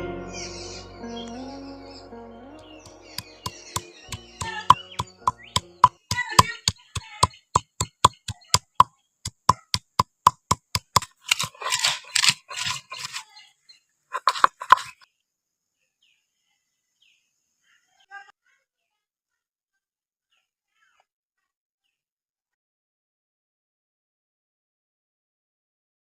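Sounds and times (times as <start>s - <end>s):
scraping noise: 10.5s - 13.3s, 14.2s - 15.0s.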